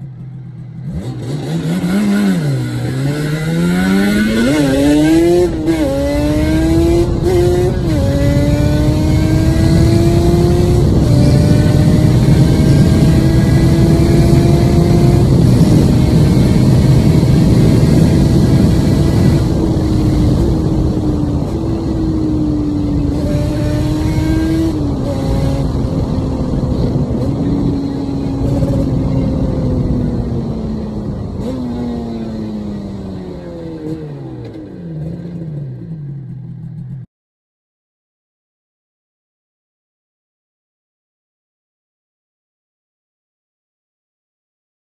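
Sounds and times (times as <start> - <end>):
two-stroke motorbike engine revving: 0.0 - 37.1.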